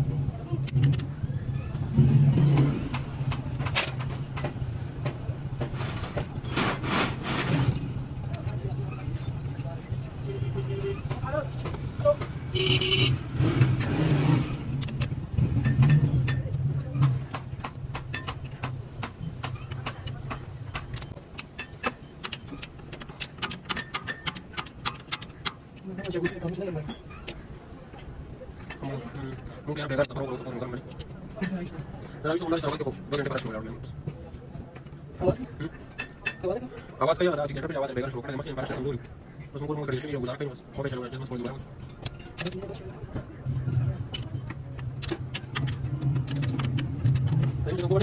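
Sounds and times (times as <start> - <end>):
metal tools clicking and knocking: 13.6 - 27.4.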